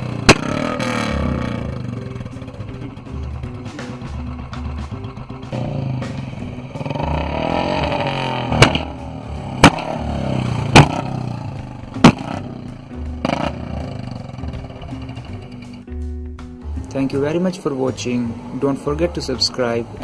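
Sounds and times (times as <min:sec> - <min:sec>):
exhaust backfire bangs: 0:00.0 - 0:15.8
background music with low beat: 0:00.0 - 0:20.0
motorcycle engine revving: 0:00.0 - 0:20.0.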